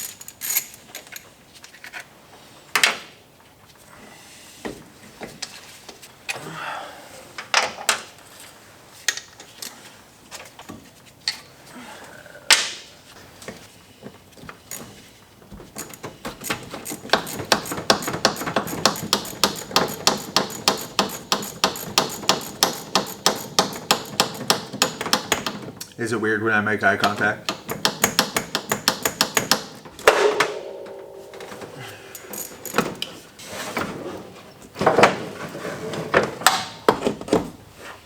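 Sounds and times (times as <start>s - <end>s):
hand tools clanking on metal: 15.8s - 25.3s, 27.5s - 33.2s
rapid metallic clicks: 15.8s - 25.6s.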